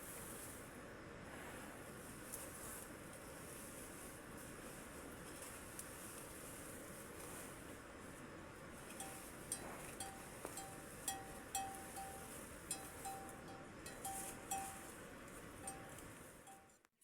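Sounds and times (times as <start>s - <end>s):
short pings: 9.0s - 14.9s.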